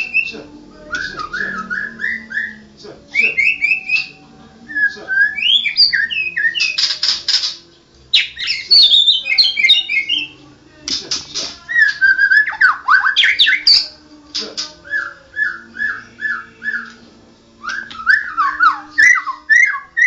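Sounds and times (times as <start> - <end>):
bird singing whistled song: 0.0 - 10.4, 11.7 - 14.0, 14.8 - 17.0, 17.6 - 20.0
bird harsh rattling chatter: 6.6 - 7.6.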